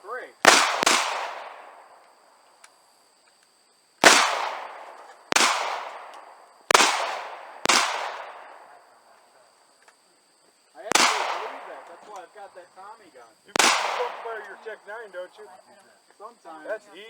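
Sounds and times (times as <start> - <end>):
gunshots with echo: 0.4 - 2.0, 4.0 - 8.9, 10.9 - 12.5, 13.5 - 15.1.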